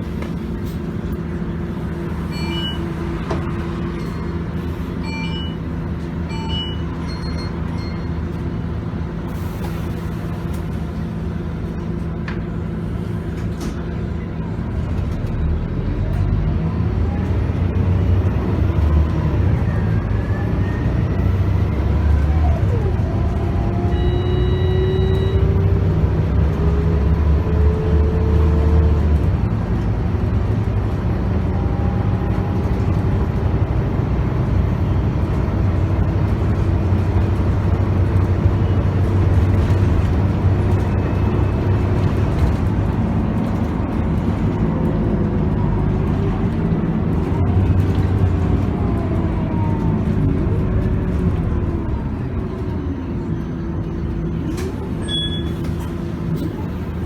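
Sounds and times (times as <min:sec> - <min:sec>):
bus engine rumble: 0:00.0 - 0:57.0
brief beep: 0:02.3 - 0:02.9, 0:05.0 - 0:05.6, 0:06.3 - 0:08.2, 0:23.9 - 0:25.5
rising transmission whine: 0:14.4 - 0:57.0.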